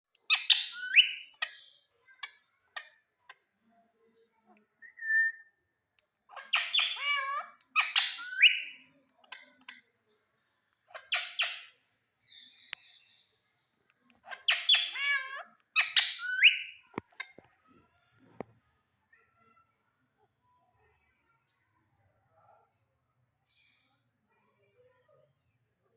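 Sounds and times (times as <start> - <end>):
parakeet squawking: 0.3 - 1.6, 6.3 - 8.8, 10.9 - 11.8, 14.2 - 16.8.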